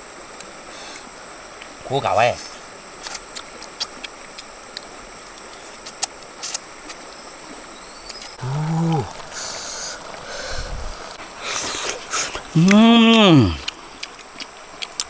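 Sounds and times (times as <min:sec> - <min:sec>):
person groaning with effort: 0:08.4 - 0:11.1, 0:12.5 - 0:13.6
breathy exhale: 0:08.4 - 0:12.4.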